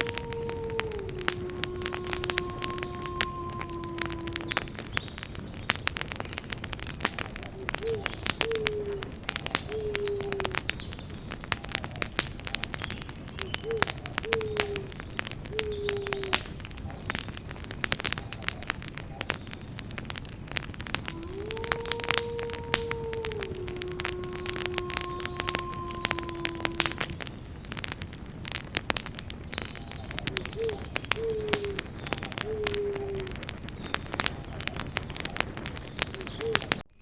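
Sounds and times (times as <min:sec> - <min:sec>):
bird calling low notes: 0:00.0 - 0:05.8, 0:07.1 - 0:19.8, 0:21.0 - 0:27.6, 0:29.4 - 0:36.9
campfire crackling and popping: 0:00.0 - 0:37.0.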